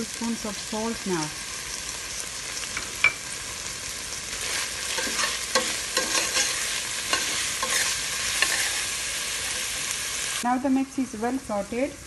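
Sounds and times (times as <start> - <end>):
food sizzling in hot oil: 0.0 - 12.0
metal spoon scraping a pot: 4.4 - 9.0.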